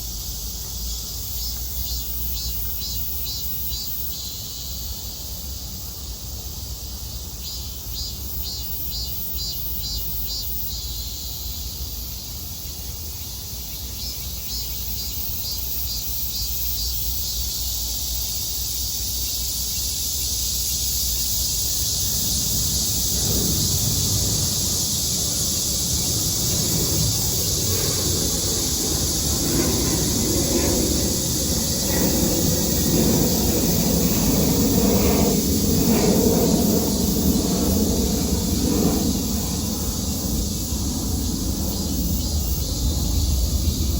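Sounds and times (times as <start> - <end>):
cicadas droning: 0.0 - 43.9
vehicle rumbling: 21.6 - 36.0.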